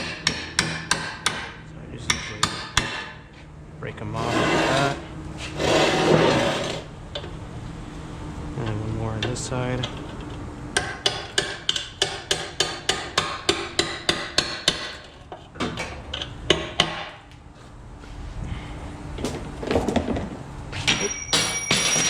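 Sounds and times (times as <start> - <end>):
hammer striking metal: 0.0 - 3.2, 10.8 - 15.0
metal ringing: 20.8 - 22.0.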